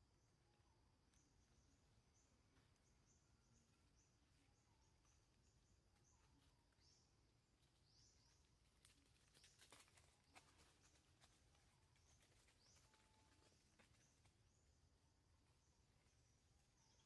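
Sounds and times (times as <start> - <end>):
bird chirping: 0.0 - 11.3.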